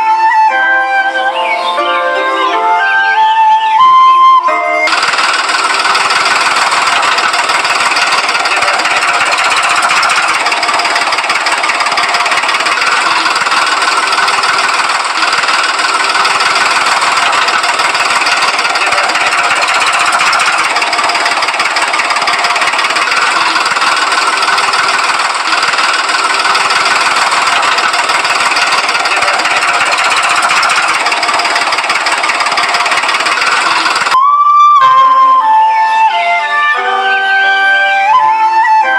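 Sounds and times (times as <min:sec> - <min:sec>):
small engine clattering: 0:04.9 - 0:34.2.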